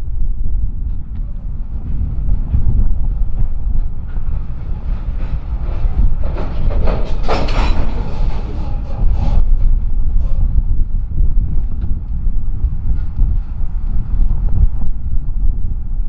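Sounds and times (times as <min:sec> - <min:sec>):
wind rumble on microphone: 0:00.0 - 0:16.0
train wheels clattering on rails: 0:01.7 - 0:10.9.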